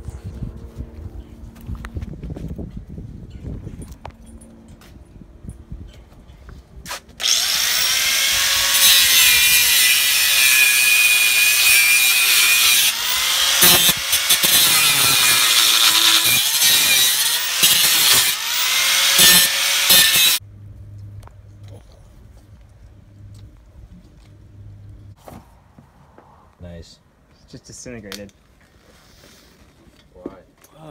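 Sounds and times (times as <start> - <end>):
angle grinder cutting metal: 7.2 - 20.4.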